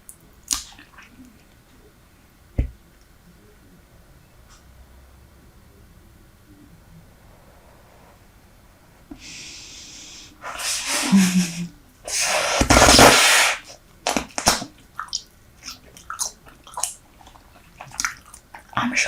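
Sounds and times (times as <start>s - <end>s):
low thump: 2.6s - 2.8s
breathy bursts of air: 9.2s - 11.4s
gum chewing smacks and clicks: 14.8s - 18.8s.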